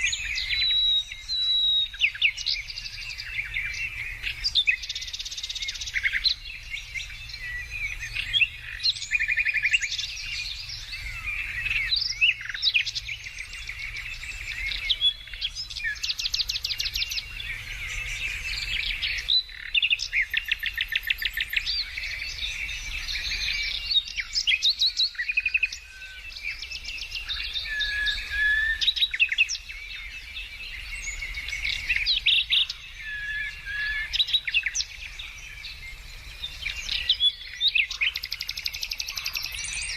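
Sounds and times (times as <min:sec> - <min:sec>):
songbirds singing and calling: 0:00.0 - 0:39.9.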